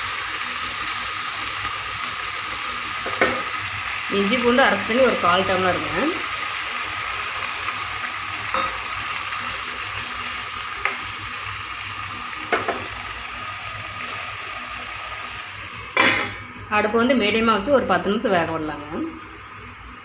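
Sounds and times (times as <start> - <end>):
chicken sizzling in oil: 0.0 - 16.8
spoon knocking against pan: 12.5 - 12.9.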